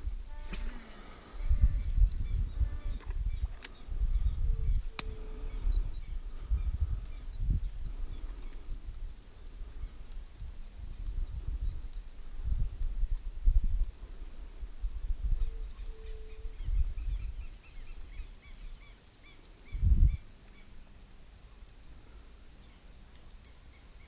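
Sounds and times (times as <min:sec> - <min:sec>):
wind rumbling on microphone: 0:00.0 - 0:18.9, 0:19.6 - 0:20.4
high insect drone: 0:00.0 - 0:24.0.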